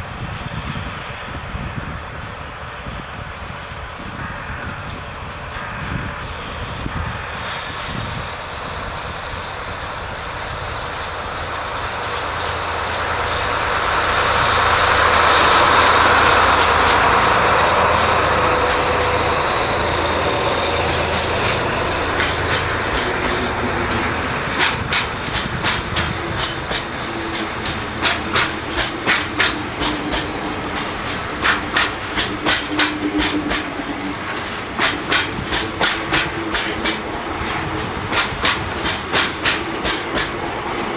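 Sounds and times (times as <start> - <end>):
locomotive engine drone: 0.0 - 40.9
wagon wheels clickety-clack: 24.6 - 33.7, 34.3 - 37.0, 38.1 - 40.4.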